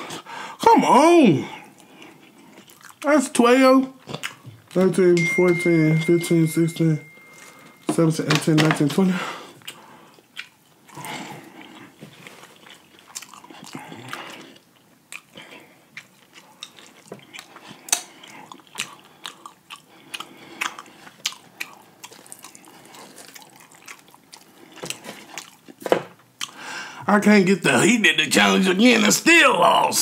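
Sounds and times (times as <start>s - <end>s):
chewing crunchy fried chicken: 1.6s - 3.2s, 3.9s - 4.9s, 9.5s - 26.6s.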